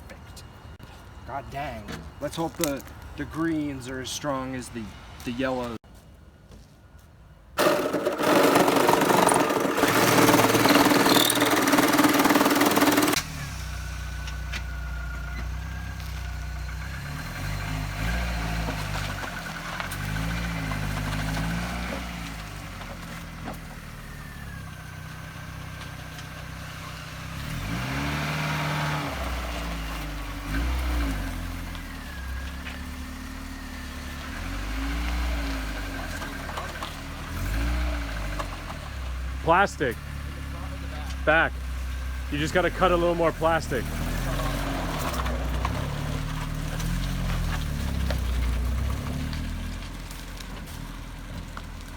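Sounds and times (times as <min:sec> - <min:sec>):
car engine revving: 0:07.6 - 0:23.5, 0:26.6 - 0:50.8.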